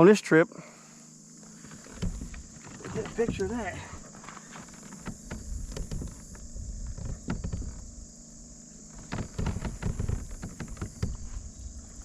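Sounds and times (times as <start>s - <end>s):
kayak handling clicks and knocks: 1.4s - 7.9s, 8.9s - 11.5s
low thumps: 1.7s - 4.0s, 4.9s - 8.0s, 8.8s - 12.0s.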